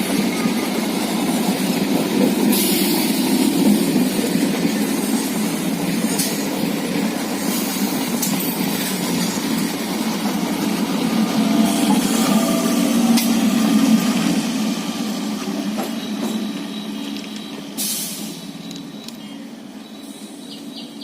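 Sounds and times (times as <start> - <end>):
wheels clicking on track: 0.0 - 12.4
passenger train rumbling: 0.0 - 21.0.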